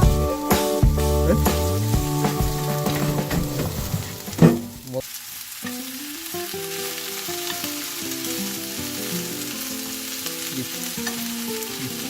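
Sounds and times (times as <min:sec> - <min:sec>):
background music: 0:00.0 - 0:04.8
food sizzling in a pan: 0:00.0 - 0:12.0.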